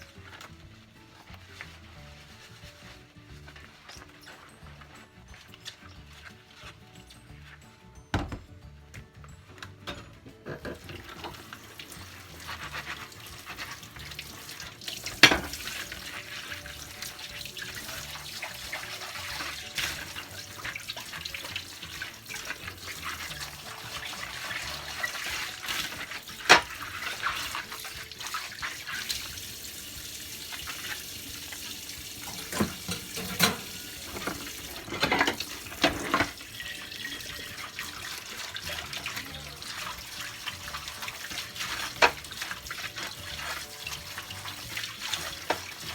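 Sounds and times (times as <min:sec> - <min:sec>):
dishes clinking: 0:09.8 - 0:11.5, 0:15.0 - 0:15.9, 0:32.2 - 0:37.5
tap running into a sink: 0:13.6 - 0:40.0, 0:41.0 - 0:45.9.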